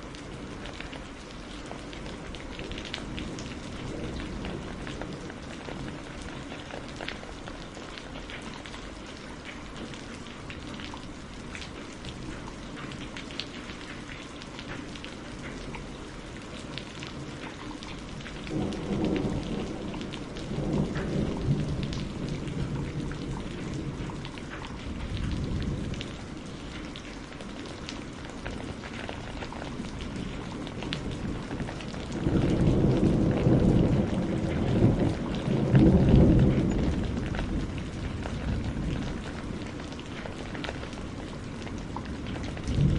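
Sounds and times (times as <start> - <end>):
raindrops ticking on a surface: 0.0 - 42.9
steady rainfall: 0.0 - 42.9
thunder rumbling: 2.1 - 8.6, 17.2 - 42.9.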